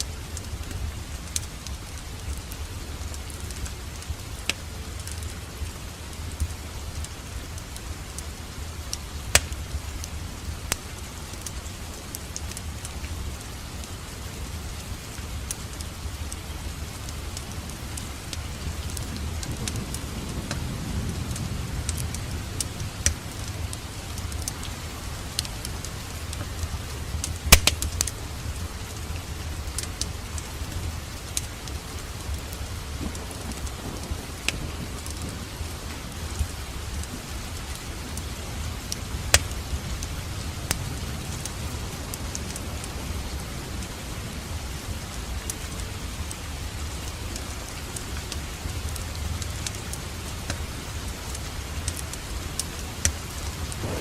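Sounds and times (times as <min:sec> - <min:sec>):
wood fire crackling: 0:00.0 - 0:54.0
fire pops and snaps: 0:08.9 - 0:14.0, 0:15.2 - 0:20.6, 0:21.3 - 0:28.2, 0:29.7 - 0:42.6, 0:48.2 - 0:54.0.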